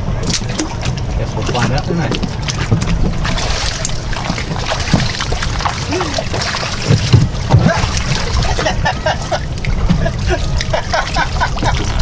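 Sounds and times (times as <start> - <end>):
water sloshing around boat hull: 0.0 - 12.0
wind rumbling on microphone: 0.0 - 12.0
dull knocks: 6.8 - 8.1.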